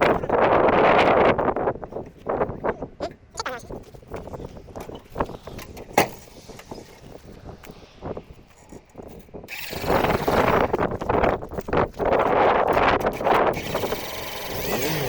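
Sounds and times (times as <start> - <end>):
loud steady rushing noise: 4.4 - 11.2.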